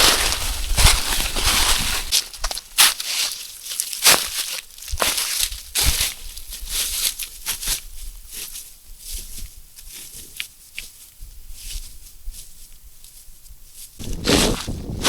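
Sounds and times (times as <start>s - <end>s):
wind rumble on microphone: 0.0s - 2.1s, 13.5s - 15.0s
footsteps crunching through dry leaves: 0.0s - 15.0s.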